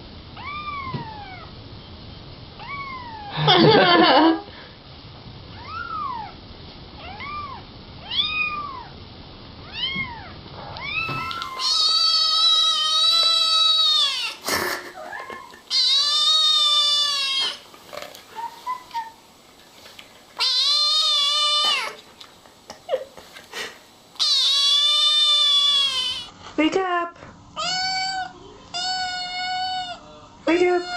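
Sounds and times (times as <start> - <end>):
cat meowing: 0.4 - 1.5, 2.6 - 3.4, 5.6 - 6.4, 7.0 - 8.9, 9.6 - 14.4, 15.0 - 17.6, 20.4 - 22.0, 24.2 - 26.3, 27.6 - 30.0.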